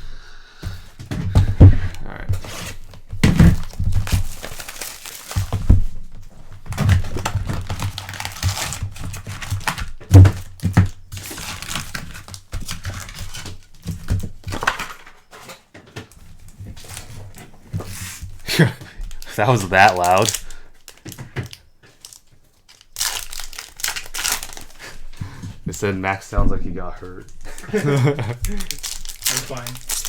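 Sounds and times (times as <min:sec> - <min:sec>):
foil wrappers crinkling and tearing: 0:02.4 - 0:15.2, 0:19.0 - 0:25.2, 0:27.2 - 0:30.0
loud thump: 0:26.4 - 0:27.0.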